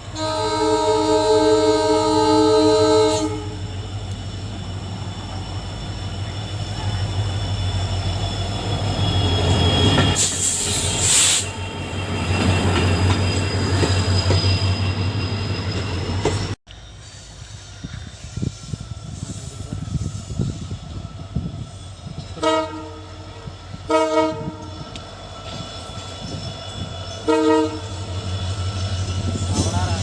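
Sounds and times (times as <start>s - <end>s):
locomotive horn: 0.0s - 3.6s, 22.4s - 24.7s, 27.2s - 28.1s
diesel locomotive engine hum: 0.0s - 30.0s.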